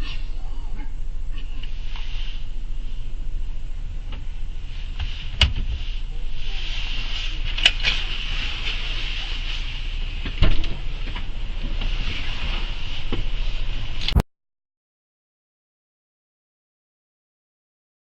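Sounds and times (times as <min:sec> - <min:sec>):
vehicle running rumble: 0:00.0 - 0:14.2
road and wind hiss: 0:01.0 - 0:14.2.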